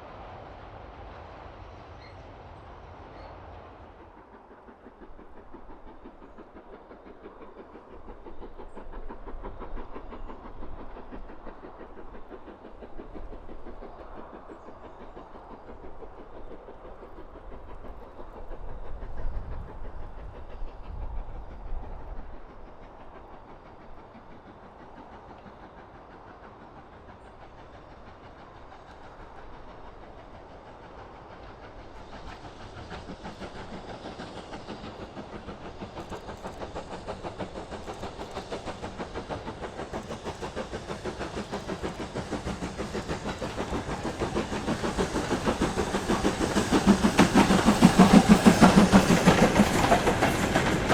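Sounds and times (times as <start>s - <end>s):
train low rumble: 0.0s - 50.9s
train wheels clattering: 3.2s - 50.9s
rising hiss: 28.7s - 50.9s.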